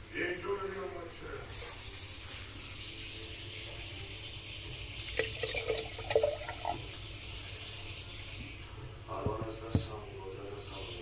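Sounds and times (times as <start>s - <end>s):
water gurgling: 4.8s - 7.4s
water pouring into reservoir: 4.9s - 7.2s.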